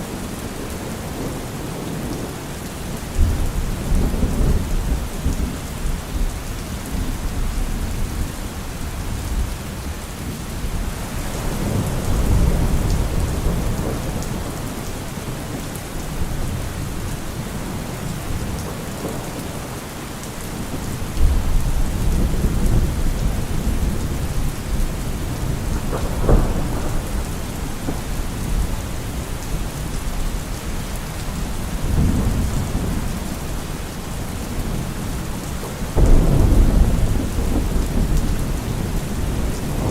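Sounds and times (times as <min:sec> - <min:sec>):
steady rain: 0:00.0 - 0:39.9
thunder rumbling: 0:10.2 - 0:19.8, 0:20.5 - 0:39.9
sharp thunder clap: 0:25.8 - 0:28.5, 0:36.0 - 0:39.9.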